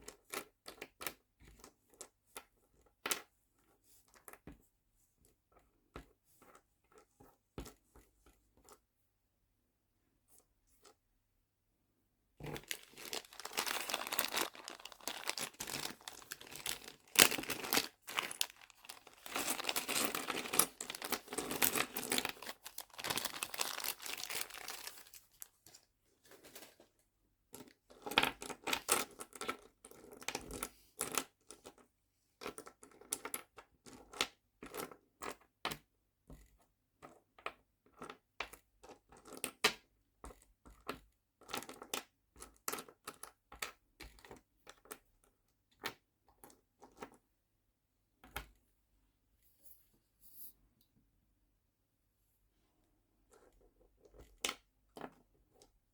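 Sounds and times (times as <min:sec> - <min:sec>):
plastic packaging crinkling: 0:12.4 - 0:25.8.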